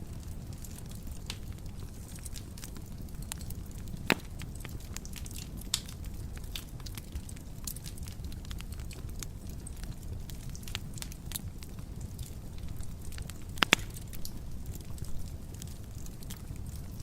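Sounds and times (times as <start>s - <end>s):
low rumble of flames: 0.0s - 17.0s
wood fire crackling: 0.0s - 17.0s
loud pop from fire: 4.0s - 4.8s, 13.6s - 14.4s.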